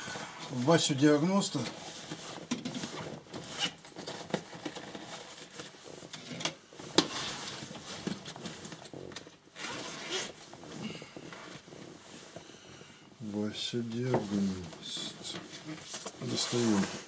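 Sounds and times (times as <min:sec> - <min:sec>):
rustling: 0:13.7 - 0:17.0.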